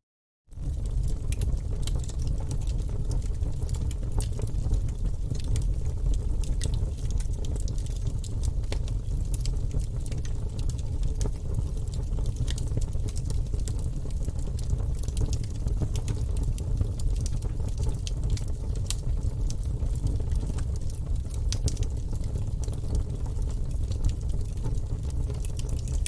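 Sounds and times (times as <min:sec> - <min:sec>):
low rumble of flame: 0:00.5 - 0:26.0
logs crackling and popping: 0:00.6 - 0:26.0.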